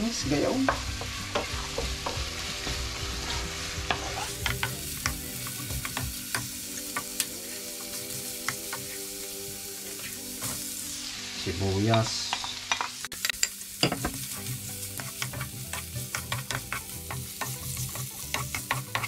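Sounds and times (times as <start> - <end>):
garlic and ginger sizzling in oil: 0.0 - 19.0
wooden spoon scraping a pan: 0.7 - 6.1, 13.9 - 19.0.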